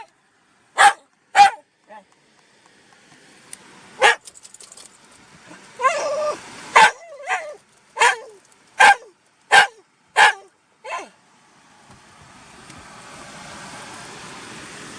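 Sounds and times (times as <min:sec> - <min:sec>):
dog barking: 0:00.8 - 0:01.6, 0:04.0 - 0:04.2, 0:05.8 - 0:11.1
dog whining yelp: 0:00.8 - 0:01.6, 0:04.0 - 0:04.2, 0:05.8 - 0:11.1.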